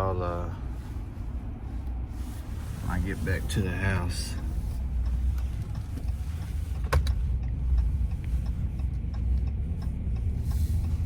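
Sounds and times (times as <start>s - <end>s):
road and engine rumble in cab: 0.0s - 11.0s.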